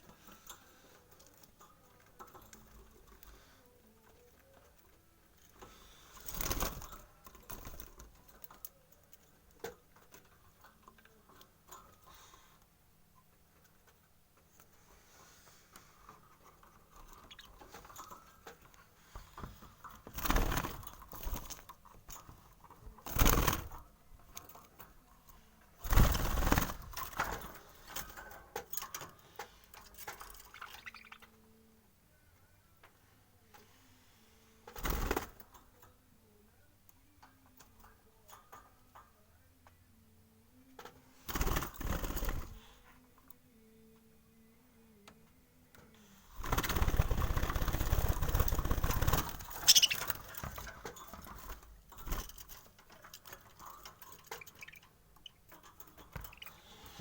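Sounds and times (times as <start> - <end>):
chicks scratching and shuffling: 13.3 - 31.4, 45.8 - 57.0.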